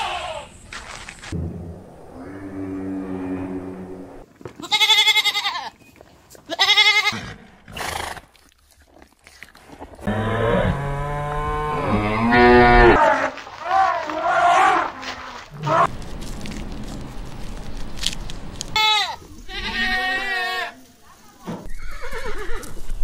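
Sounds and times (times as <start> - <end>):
low drawn-out animal call: 1.4 - 4.2
quavering bleats: 18.8 - 20.8.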